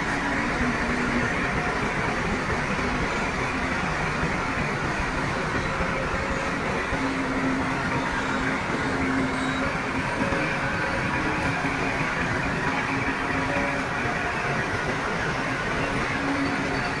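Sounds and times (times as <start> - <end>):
heavy diesel machinery running: 0.0 - 17.0.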